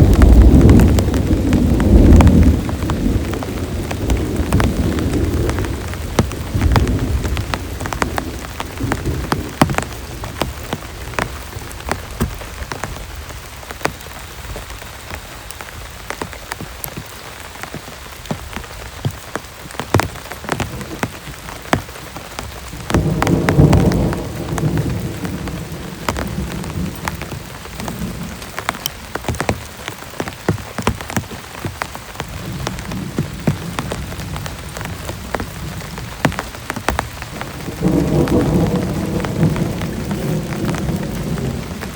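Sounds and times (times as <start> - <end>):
low thunder rumble: 0.0 - 13.4, 22.4 - 29.6, 32.2 - 41.9
heavy rain falling: 0.0 - 41.9.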